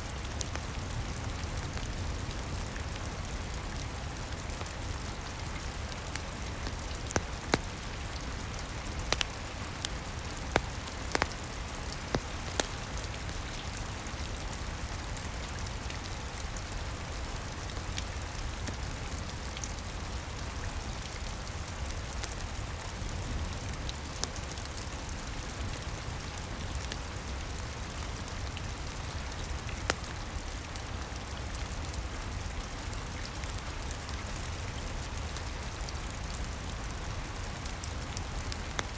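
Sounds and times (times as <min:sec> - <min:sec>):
steady rain: 0:00.0 - 0:38.9
wood fire popping: 0:04.4 - 0:14.8, 0:29.3 - 0:30.2.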